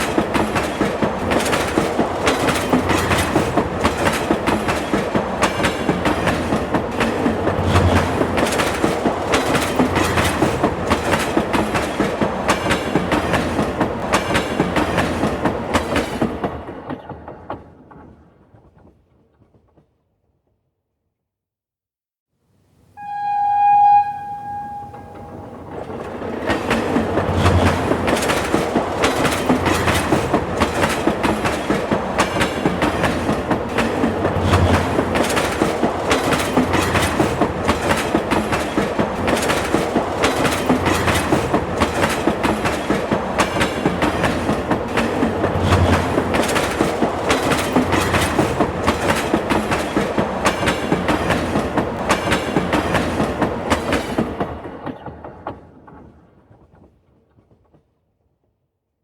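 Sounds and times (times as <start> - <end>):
train wheels clickety-clack: 0.0 - 20.0, 25.1 - 58.2
train horn: 23.0 - 25.7.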